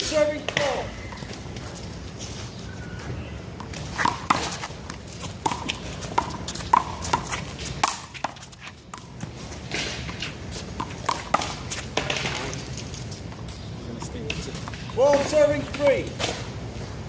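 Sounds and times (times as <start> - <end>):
handball smacking off wall and pavement: 3.6 - 12.8.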